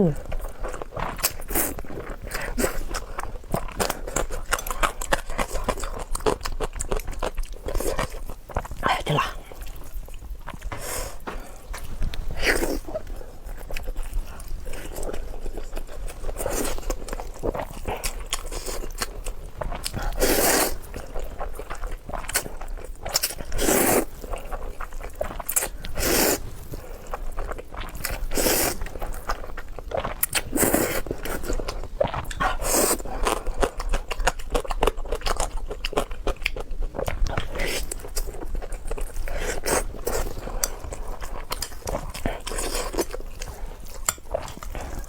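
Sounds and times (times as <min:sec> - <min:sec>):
chewing and crunching: 0:00.0 - 0:45.0.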